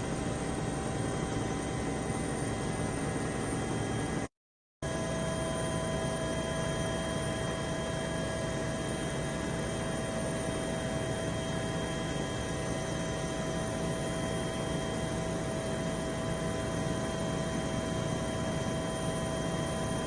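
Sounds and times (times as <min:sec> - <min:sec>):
aircraft engine and airflow noise: 0:00.0 - 0:20.0.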